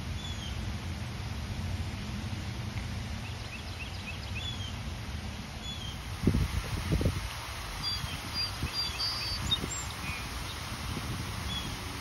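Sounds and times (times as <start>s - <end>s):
small birds chirping: 3.2s - 4.8s, 5.6s - 6.1s, 7.7s - 10.8s, 11.4s - 11.8s.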